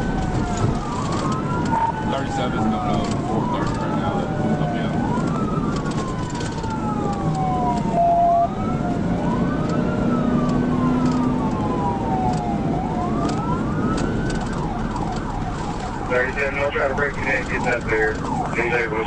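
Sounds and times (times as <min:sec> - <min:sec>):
loud steady siren tone: 0:00.0 - 0:19.0
police siren wailing: 0:00.0 - 0:19.0
road and engine noise: 0:00.0 - 0:19.0.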